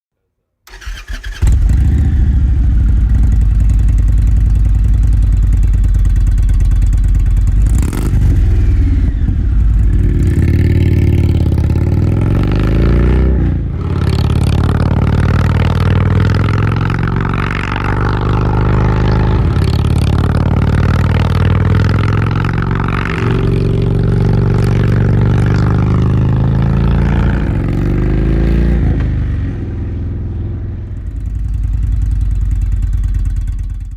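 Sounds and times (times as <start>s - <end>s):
motorcycle engine revving: 0.7s - 33.9s.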